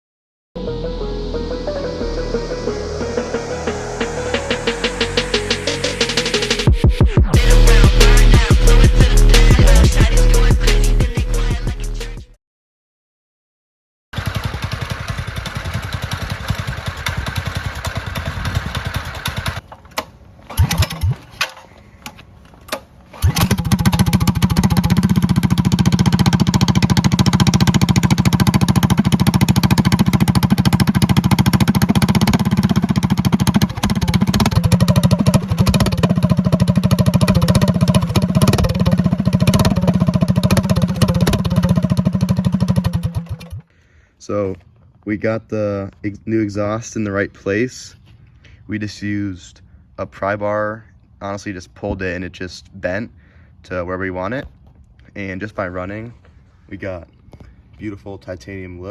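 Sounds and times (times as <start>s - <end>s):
minibike engine running: 14.2s - 22.1s, 23.1s - 43.6s.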